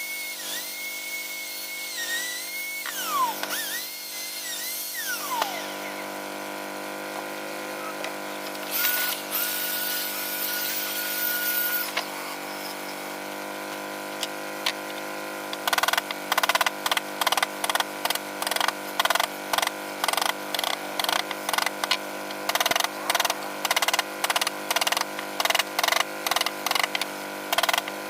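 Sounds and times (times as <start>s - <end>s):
electric power tool whining: 0.0s - 28.0s
steady hum: 4.9s - 13.4s.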